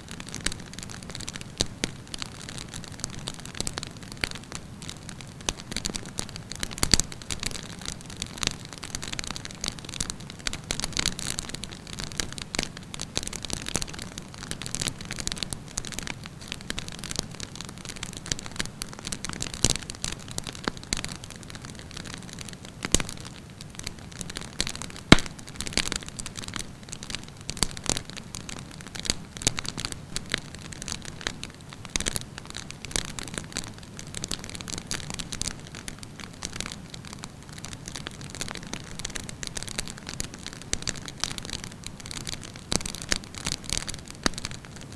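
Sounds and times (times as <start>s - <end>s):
campfire crackling: 0.0s - 44.9s
sharp pops of fire: 24.2s - 26.6s.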